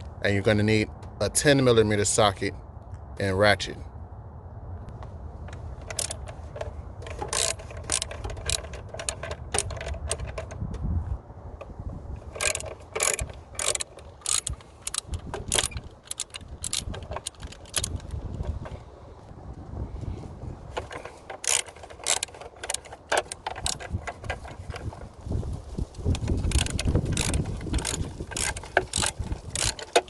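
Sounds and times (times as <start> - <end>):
ratchet clicking: 5.8 - 10.6, 12.2 - 18.8, 20.8 - 25.0, 26.0 - 30.0.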